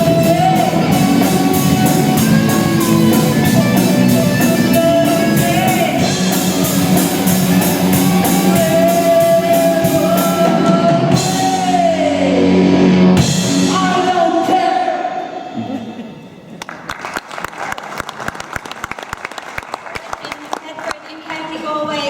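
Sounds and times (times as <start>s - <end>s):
drum kit: 0.0s - 14.6s
person singing: 0.0s - 16.0s
electric guitar: 0.0s - 16.4s.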